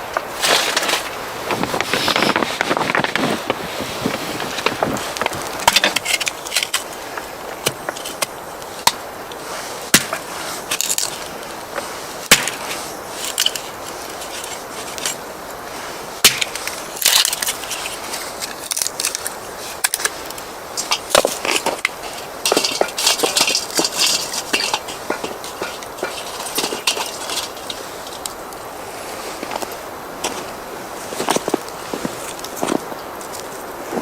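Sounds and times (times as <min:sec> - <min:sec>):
dry wood cracking and splintering: 0:00.1 - 0:09.0, 0:16.2 - 0:28.4.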